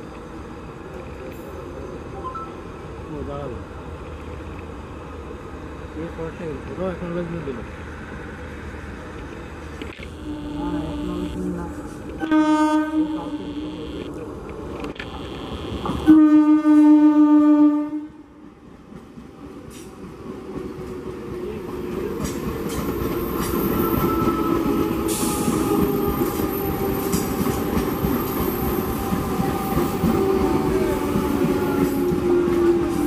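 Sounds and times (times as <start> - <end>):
train horn blasts: 10.1 - 14.1, 15.8 - 18.2
train wheels rumbling on rails: 18.4 - 33.0.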